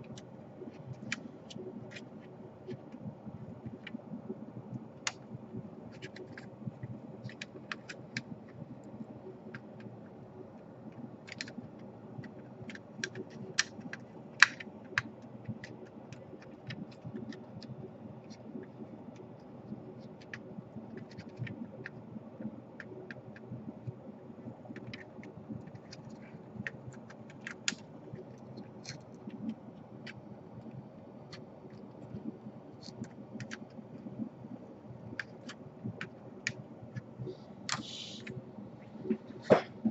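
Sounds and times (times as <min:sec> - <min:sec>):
steady low hum: 0:00.0 - 0:39.9
clicks of laptop plastic parts: 0:07.2 - 0:08.6, 0:11.2 - 0:17.7, 0:18.3 - 0:24.0, 0:24.7 - 0:32.2, 0:32.8 - 0:33.8.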